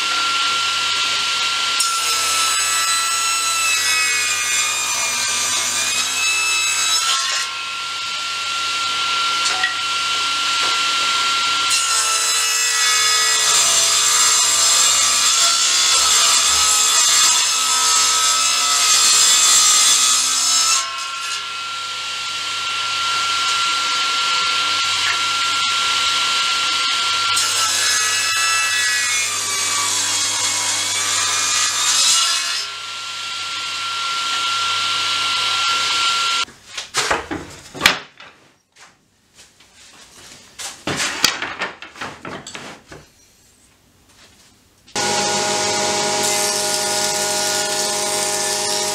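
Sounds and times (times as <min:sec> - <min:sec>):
table saw cutting wood: 0:00.0 - 0:36.5, 0:44.9 - 0:48.9
table saw blade whine: 0:21.0 - 0:36.5, 0:45.0 - 0:48.9.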